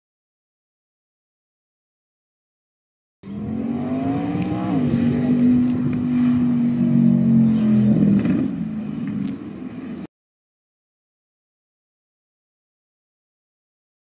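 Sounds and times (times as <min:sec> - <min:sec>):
car engine accelerating: 0:03.2 - 0:10.1.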